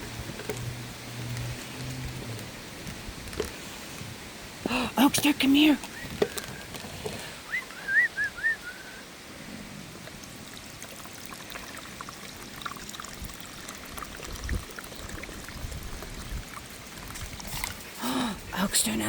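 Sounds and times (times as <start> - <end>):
water pouring and trickling: 9.9 - 19.0.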